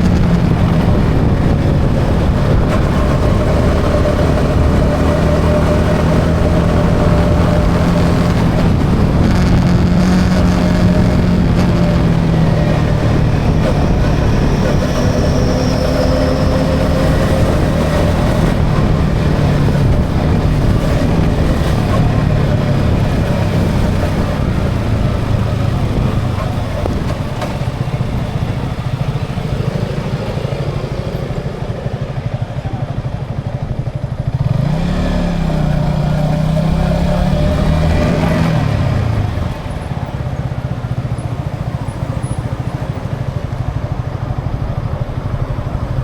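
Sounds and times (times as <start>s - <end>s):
motorcycle engine running: 0.0s - 46.0s
wind and road noise: 0.0s - 46.0s.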